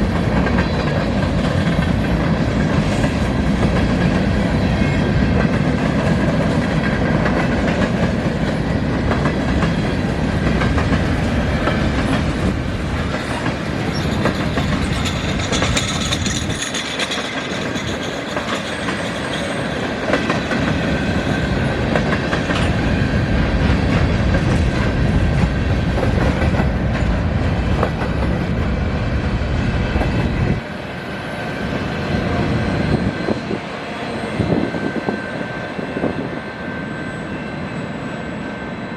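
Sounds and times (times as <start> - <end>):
train wheels clacking on rails: 0.0 - 38.9
high wheel squeal: 13.0 - 19.9, 31.6 - 38.9.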